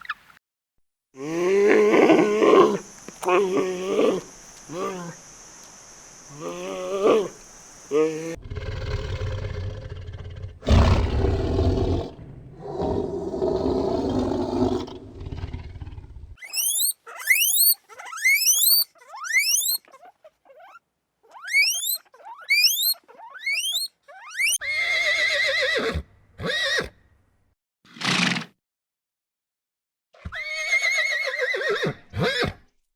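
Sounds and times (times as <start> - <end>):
animal rough roar: 1.2 - 5.2, 6.3 - 16.4
quick rising chirps: 16.4 - 19.8, 21.4 - 24.6
horse whinnying: 16.4 - 20.8, 21.4 - 27.0, 30.2 - 32.6.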